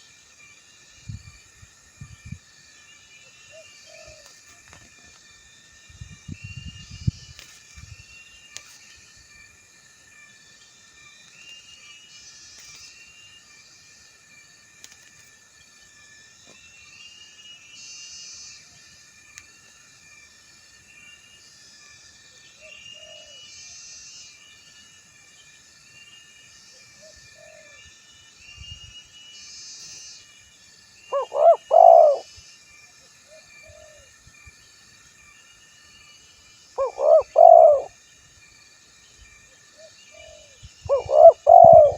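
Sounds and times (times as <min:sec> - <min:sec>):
insects and small birds chorus: 0:00.0 - 0:41.9
dove cooing: 0:03.5 - 0:04.3, 0:31.1 - 0:32.3, 0:36.8 - 0:37.9, 0:40.1 - 0:41.9.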